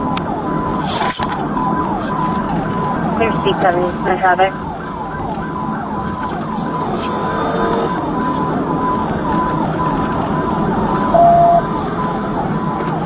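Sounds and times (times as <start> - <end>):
engine and road noise: 0.0 - 13.0
police siren cycling rapidly: 0.0 - 13.0
short steady beep: 11.1 - 11.6.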